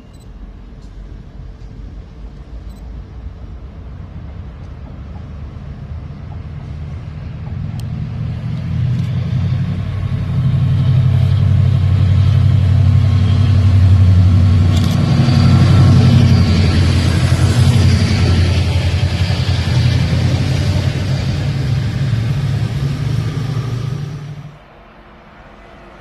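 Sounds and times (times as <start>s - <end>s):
train engine drone: 0.0s - 26.0s.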